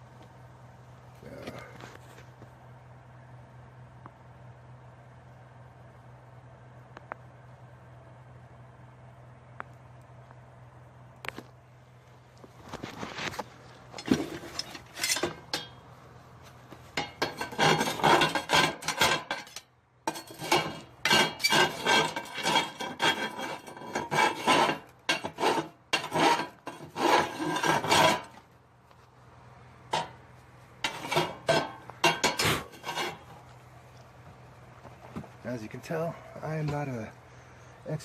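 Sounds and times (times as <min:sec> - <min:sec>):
metal scraping on steel: 0:14.0 - 0:15.8, 0:17.0 - 0:28.4, 0:29.9 - 0:30.2, 0:30.8 - 0:33.5.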